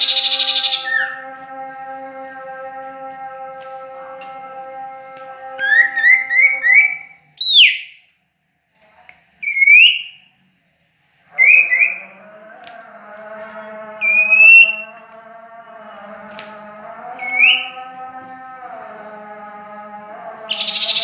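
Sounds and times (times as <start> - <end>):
songbird whistling rising notes: 0.0 - 1.2, 5.6 - 8.0, 9.4 - 10.2, 17.2 - 17.7.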